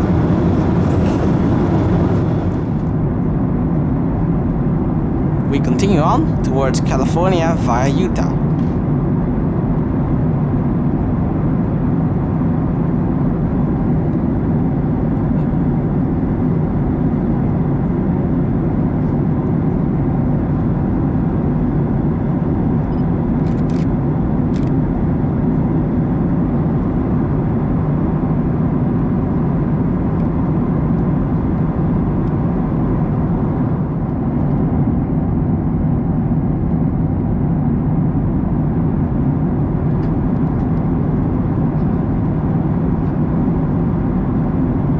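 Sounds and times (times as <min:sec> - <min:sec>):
airplane cabin drone: 0:00.0 - 0:03.0, 0:05.3 - 0:08.8.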